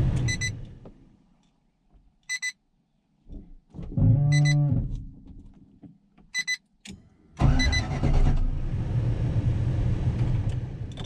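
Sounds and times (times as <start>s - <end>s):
engine cranking and running: 7.4s - 8.7s.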